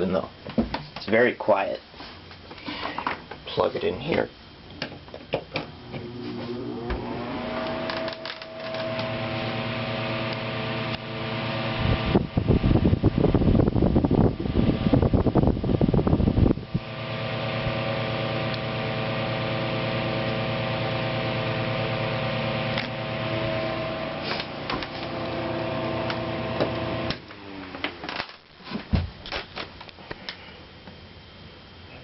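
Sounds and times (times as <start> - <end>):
table fan motor humming: 5.6 - 28.0
fan air rush: 5.6 - 32.0.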